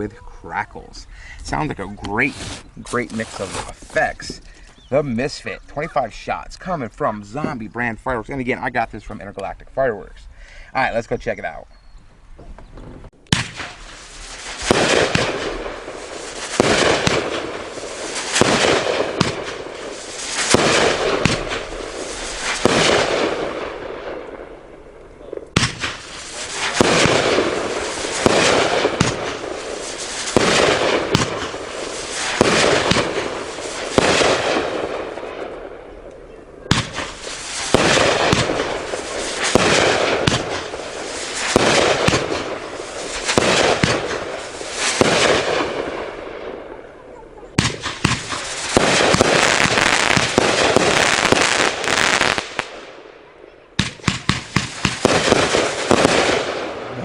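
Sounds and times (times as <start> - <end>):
crackling hissing firework bursts: 1.0 - 5.2, 13.2 - 24.7, 25.5 - 35.8, 36.7 - 46.7, 47.5 - 53.1, 53.8 - 56.9
firework shots firing: 13.2 - 36.0, 36.6 - 46.8, 47.5 - 53.2, 53.8 - 56.9.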